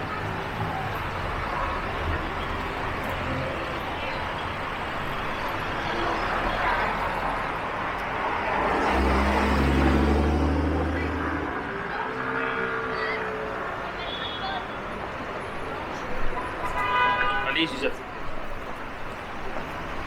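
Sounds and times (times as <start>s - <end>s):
street traffic: 0.0s - 20.0s
vehicle engine hum passing: 5.2s - 14.0s.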